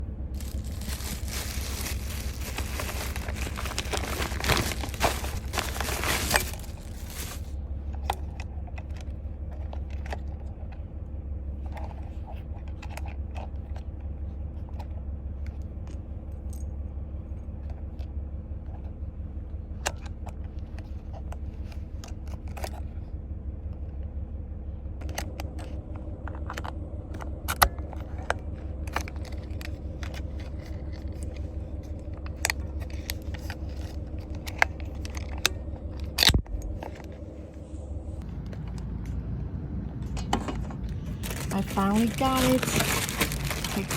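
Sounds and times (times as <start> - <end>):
steady low rumble: 0.0 - 43.9
loud rustling: 0.4 - 7.5, 41.0 - 43.9.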